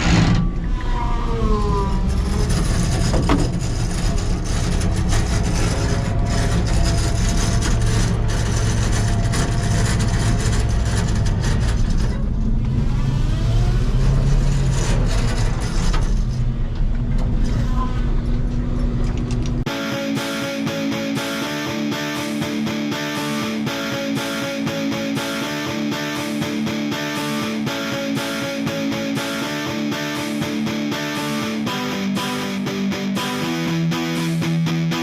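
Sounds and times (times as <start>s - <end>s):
dump truck engine running: 0.0s - 19.7s
truck clanks and rattles: 2.1s - 12.9s, 13.6s - 19.7s.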